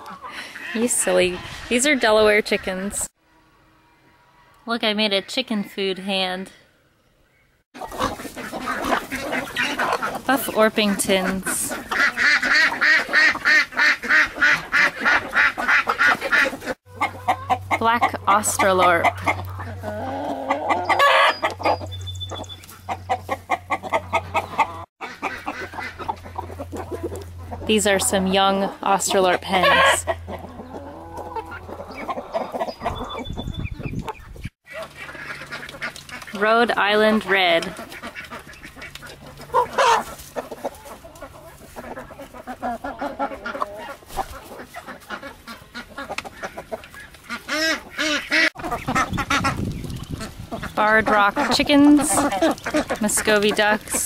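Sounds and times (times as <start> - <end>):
chickens clucking: 0.0 - 3.1, 7.8 - 54.0
chicken drawn-out call: 18.6 - 27.6, 29.5 - 33.3, 37.8 - 50.7.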